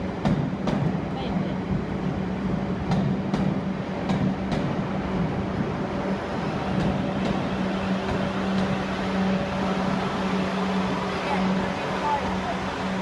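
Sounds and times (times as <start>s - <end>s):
train equipment humming: 0.0s - 13.0s.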